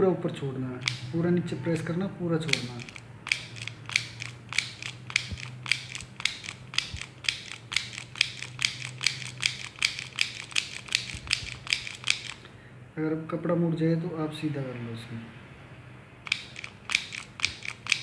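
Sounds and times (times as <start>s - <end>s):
mini sewing machine clicking: 0.8s - 1.2s, 2.5s - 12.4s, 16.2s - 18.0s.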